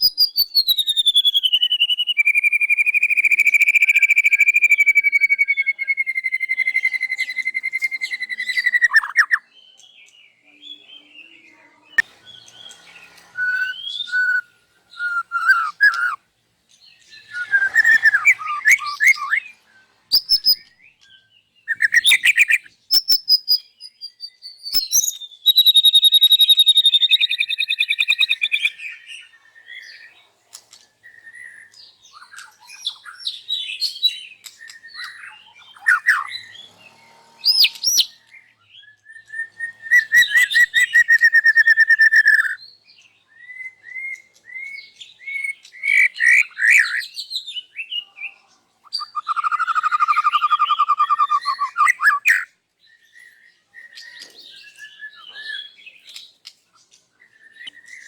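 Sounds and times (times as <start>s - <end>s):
bird singing whistled phrases: 0.0s - 16.2s, 16.9s - 30.1s, 31.0s - 36.6s, 37.3s - 56.3s, 57.2s - 58.0s
rapid bird trills: 17.2s - 19.5s, 48.8s - 52.5s.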